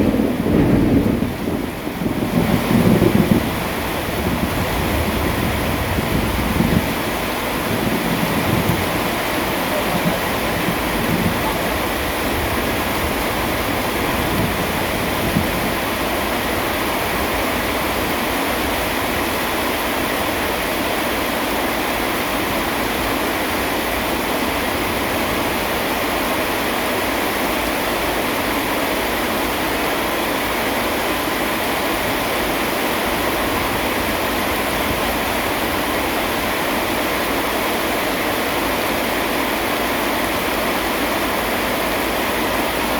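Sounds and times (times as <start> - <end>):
distant thunder rumble: 0.0 - 18.4
heavy rain hiss: 0.0 - 42.9.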